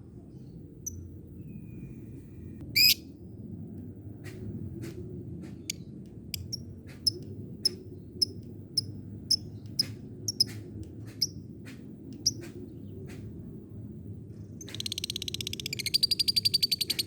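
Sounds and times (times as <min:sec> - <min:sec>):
low steady background hum: 0:00.0 - 0:17.0
lovebird ticking calls: 0:06.4 - 0:10.6.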